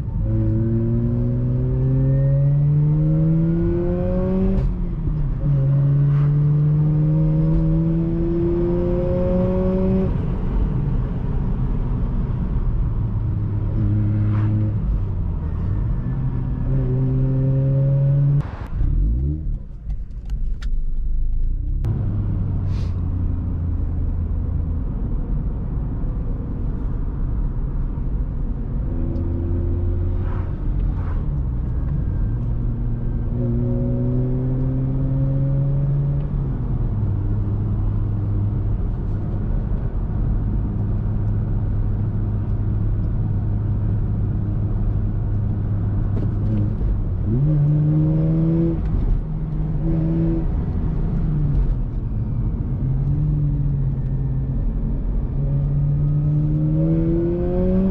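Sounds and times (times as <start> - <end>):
rotary engine accelerating: 0.2 - 4.7, 5.3 - 10.4, 13.6 - 19.6, 28.9 - 36.4, 45.8 - 57.9.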